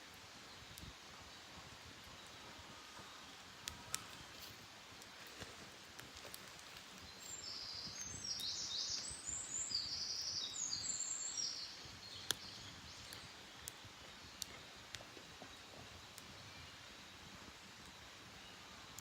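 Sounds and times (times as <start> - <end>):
wood fire popping: 3.5 - 18.0
songbird singing: 5.4 - 19.0.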